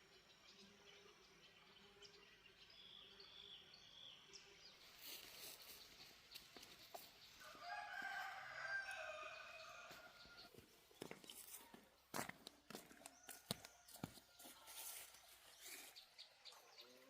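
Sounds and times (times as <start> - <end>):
rooster crowing: 7.4 - 10.4.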